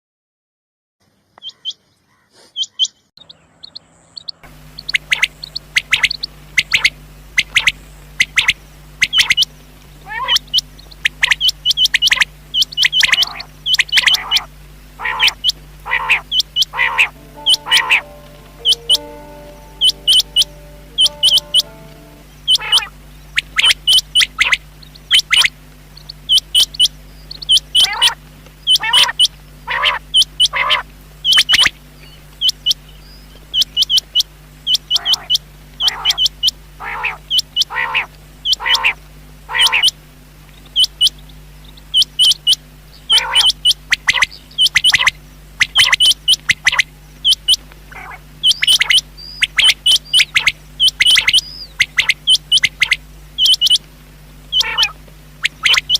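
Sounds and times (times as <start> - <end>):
quail call: 4.7 - 25.5, 27.5 - 31.7, 33.5 - 40.0, 41.9 - 53.8, 54.5 - 55.9.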